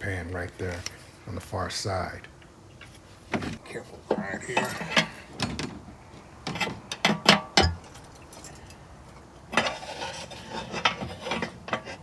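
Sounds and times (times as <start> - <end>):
metal scrape: 9.5 - 12.0.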